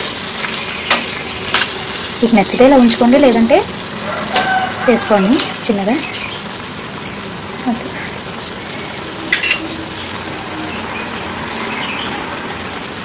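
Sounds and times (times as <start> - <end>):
egg sizzling in pan: 0.0 - 13.0
spoon clattering against pan: 9.3 - 9.8.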